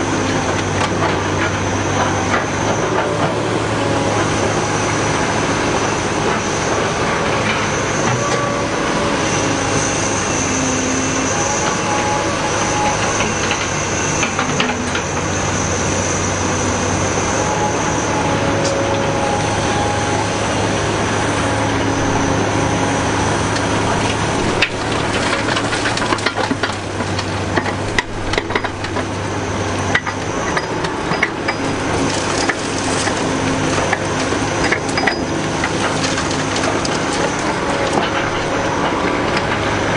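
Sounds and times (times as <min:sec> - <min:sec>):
excavator diesel engine: 0:00.0 - 0:39.9
hydraulic whine: 0:00.0 - 0:39.9
rock and dirt crunching: 0:07.3 - 0:39.9.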